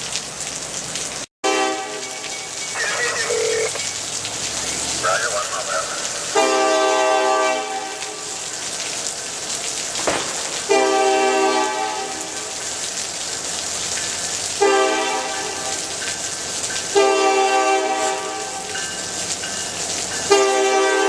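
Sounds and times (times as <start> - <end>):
rain hiss: 0.0 - 21.0
locomotive air horn chord blasts: 1.4 - 2.2, 6.3 - 8.3, 10.7 - 12.5, 14.6 - 15.9, 16.9 - 18.7, 20.3 - 21.0
sharp crack: 9.9 - 10.8.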